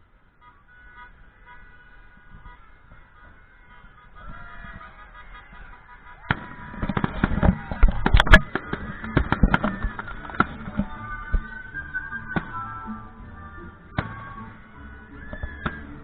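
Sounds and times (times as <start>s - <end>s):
fireworks bangs and crackling: 6.2s - 11.6s
music playing: 6.3s - 16.0s.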